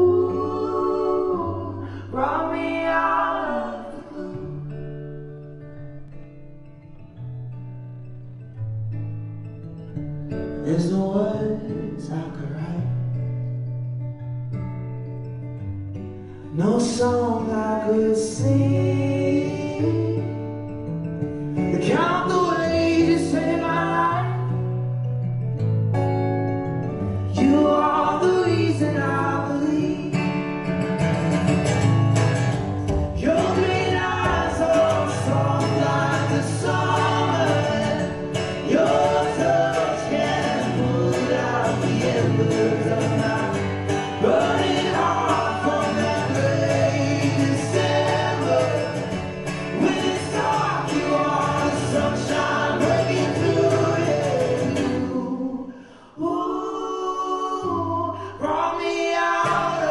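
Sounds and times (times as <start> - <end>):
person singing: 0.0 - 4.6, 32.9 - 59.9
guitar accompaniment: 0.0 - 56.1, 57.1 - 59.9.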